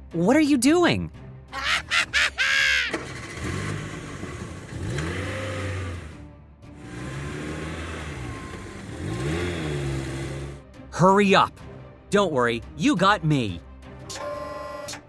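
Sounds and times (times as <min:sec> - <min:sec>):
background music: 0:00.0 - 0:03.7, 0:04.7 - 0:15.0
vehicle engine revving: 0:03.0 - 0:10.6.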